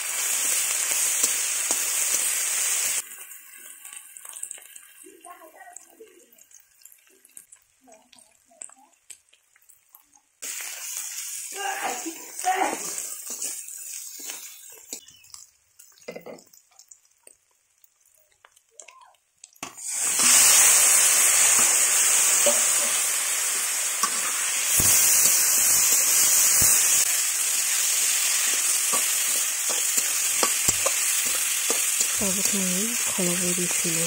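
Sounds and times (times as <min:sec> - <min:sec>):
meat sizzling in hot oil: 0:00.0 - 0:34.0
onions frying in oil: 0:00.0 - 0:34.0
spatula scraping wok: 0:12.8 - 0:15.0, 0:24.0 - 0:34.0.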